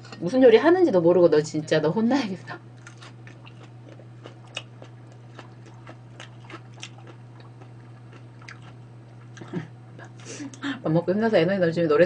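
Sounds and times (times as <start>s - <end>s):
steady low hum: 0.0s - 12.0s
mouth chewing wetly: 2.8s - 10.6s.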